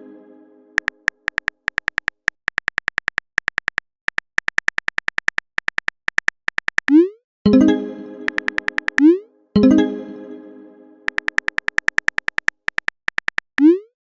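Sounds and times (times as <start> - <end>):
keyboard typing clicks: 0.8 - 7.0, 8.2 - 9.1, 11.1 - 13.8.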